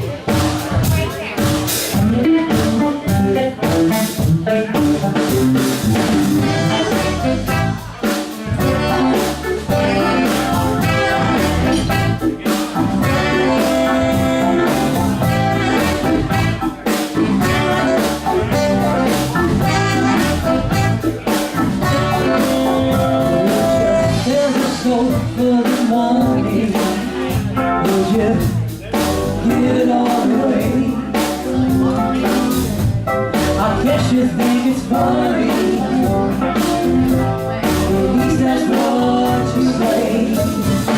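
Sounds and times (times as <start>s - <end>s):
live blues-jazz band: 0.0s - 40.9s
held horn notes: 6.4s - 8.0s, 8.6s - 24.2s.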